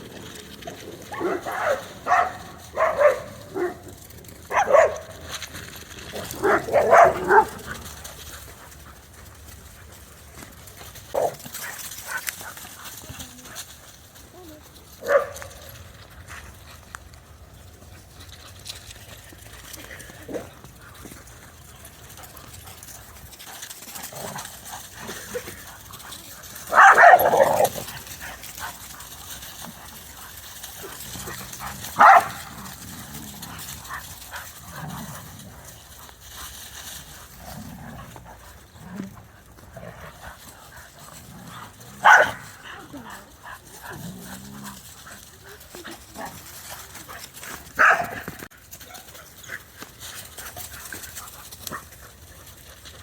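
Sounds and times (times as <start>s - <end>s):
dogs playing: 0.0s - 53.0s
dog barking: 1.2s - 3.8s, 4.5s - 5.0s, 6.4s - 7.5s, 26.7s - 27.6s, 32.0s - 32.4s, 42.0s - 42.4s, 47.8s - 48.2s.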